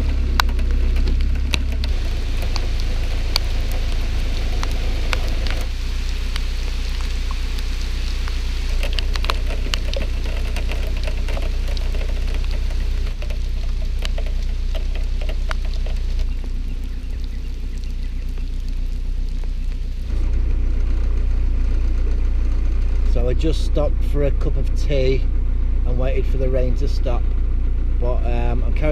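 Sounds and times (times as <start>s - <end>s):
rain falling: 0.0s - 23.8s
low hum: 0.0s - 28.9s.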